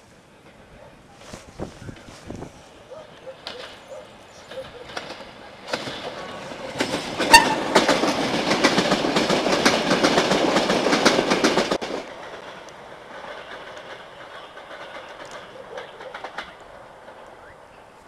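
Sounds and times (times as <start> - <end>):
distant train: 0.0 - 18.0
train wheels clattering: 3.3 - 17.6.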